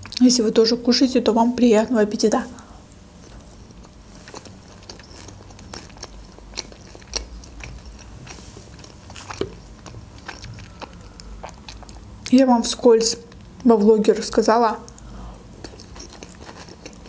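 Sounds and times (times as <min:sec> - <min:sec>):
salad crunching: 0:03.2 - 0:12.2, 0:14.9 - 0:17.0
wet chewing: 0:03.2 - 0:12.4, 0:13.0 - 0:17.0.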